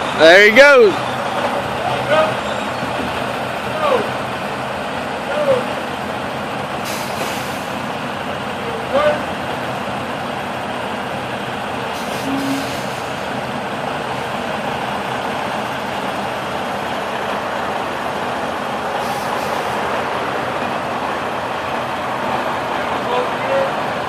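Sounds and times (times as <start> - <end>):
diesel truck engine running: 0.0 - 24.0
air brake hisses: 6.8 - 7.8, 12.0 - 13.3, 19.0 - 19.8.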